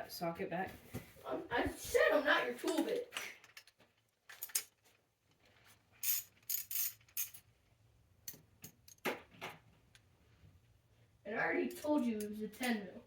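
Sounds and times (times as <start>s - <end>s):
metal tools clinking: 6.0s - 7.5s.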